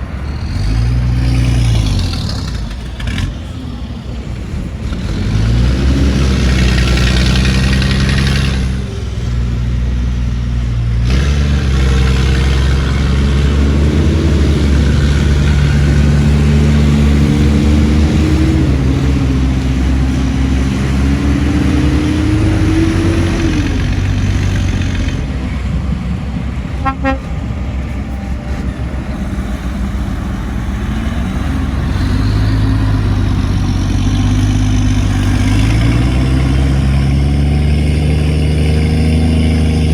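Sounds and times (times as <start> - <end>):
heavy diesel engines revving: 0.0 - 39.9
short horn toot: 26.8 - 28.8.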